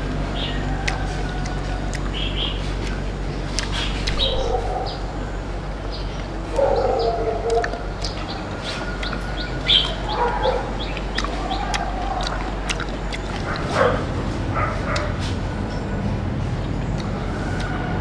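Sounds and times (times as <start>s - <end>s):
small birds chirping: 0.2s - 17.8s
lower animal calls: 0.3s - 5.6s, 6.2s - 15.2s.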